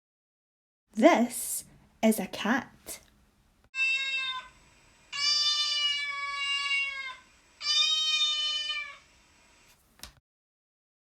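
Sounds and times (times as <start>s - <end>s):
cat meowing: 3.8s - 9.1s.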